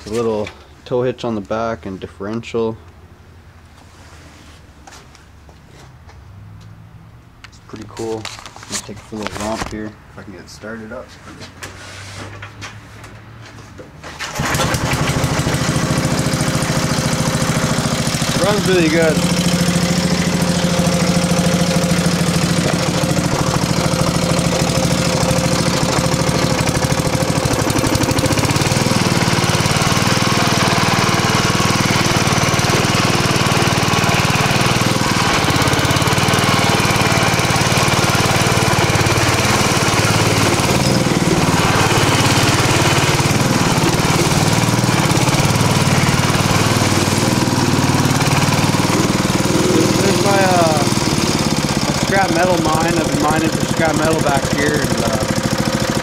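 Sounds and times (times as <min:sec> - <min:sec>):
lawn mower engine running: 0:14.0 - 0:56.0.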